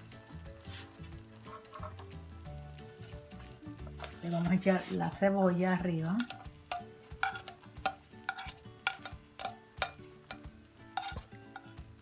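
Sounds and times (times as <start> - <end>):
faint background music: 0.0 - 12.0
spoon knocking against cooking pot: 6.2 - 11.7.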